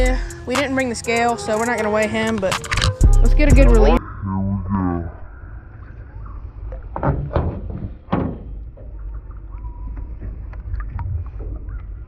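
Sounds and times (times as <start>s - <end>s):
low steady rumble: 0.0s - 1.6s.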